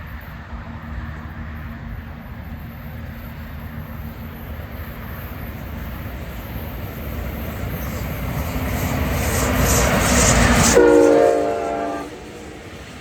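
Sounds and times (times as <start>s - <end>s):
train hiss: 0.0s - 13.0s
train rumble: 0.0s - 13.0s.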